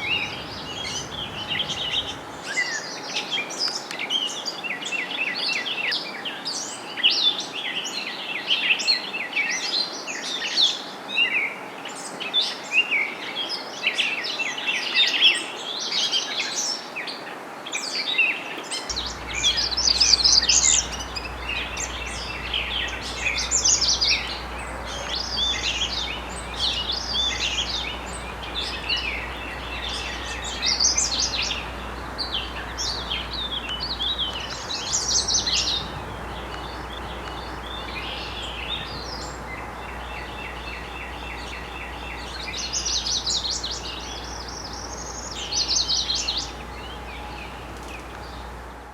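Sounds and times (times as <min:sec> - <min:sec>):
faint low hum: 0:00.0 - 0:02.5, 0:18.9 - 0:48.9
songbirds singing: 0:00.0 - 0:08.8, 0:17.8 - 0:48.9.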